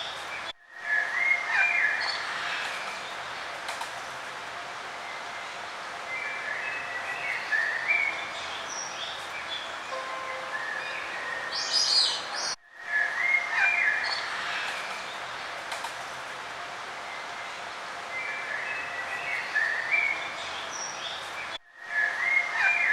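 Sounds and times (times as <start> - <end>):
steady background hiss: 0.0 - 22.9
songbirds singing and chirping: 4.9 - 15.6, 17.0 - 22.9.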